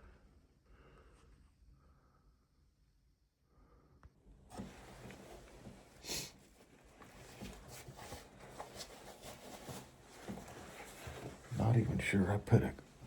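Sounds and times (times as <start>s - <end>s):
hissing sniff: 6.0s - 6.4s
handling and rustling: 6.5s - 12.1s.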